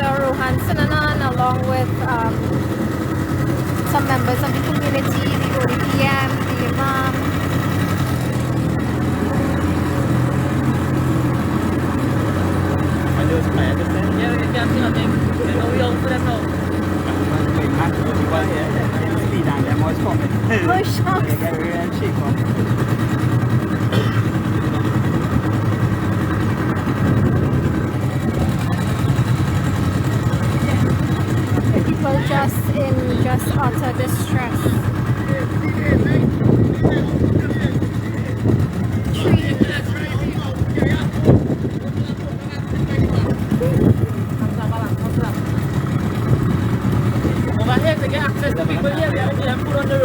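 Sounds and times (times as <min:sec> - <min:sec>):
motor engine droning: 0:00.0 - 0:50.0.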